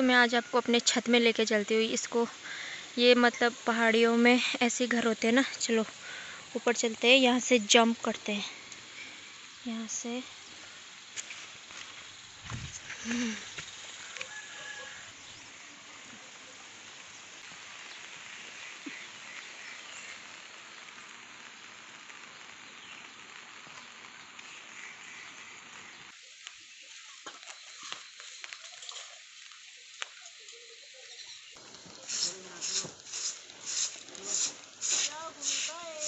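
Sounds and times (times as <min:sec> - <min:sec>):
rain on a slate roof: 0:00.0 - 0:36.0.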